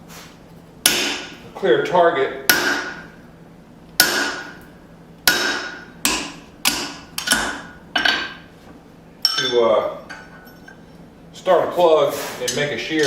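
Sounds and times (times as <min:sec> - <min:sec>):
hammer striking steel punch: 0:00.8 - 0:01.4, 0:02.5 - 0:03.2, 0:04.0 - 0:04.6, 0:05.2 - 0:08.4.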